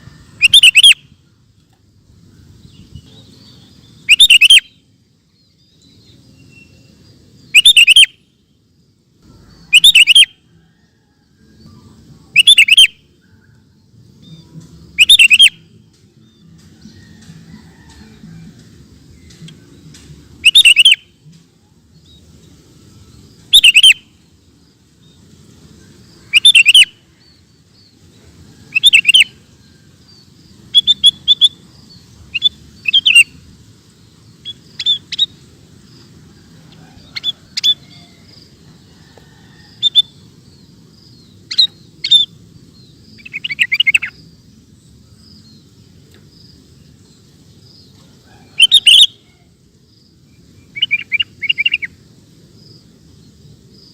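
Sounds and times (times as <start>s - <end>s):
faint low background noise: 0.0s - 53.9s
bulbul singing chirpy phrases: 0.4s - 1.2s, 2.4s - 4.9s, 6.0s - 8.7s, 9.4s - 10.4s, 11.8s - 13.2s, 13.8s - 15.8s, 19.5s - 21.2s, 22.2s - 25.6s, 26.2s - 27.7s, 28.7s - 29.5s, 30.2s - 35.9s.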